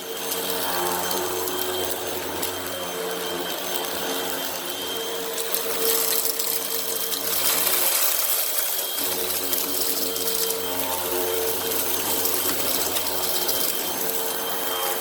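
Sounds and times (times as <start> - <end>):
vacuum cleaner motor whine: 0.0 - 15.0
debris ticking: 0.1 - 15.0.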